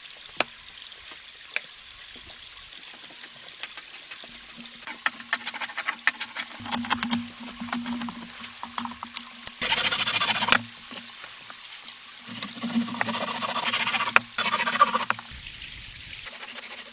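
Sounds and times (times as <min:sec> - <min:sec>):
rain pattering and dripping: 0:00.0 - 0:16.3
sharp drip ticks: 0:06.6 - 0:11.6.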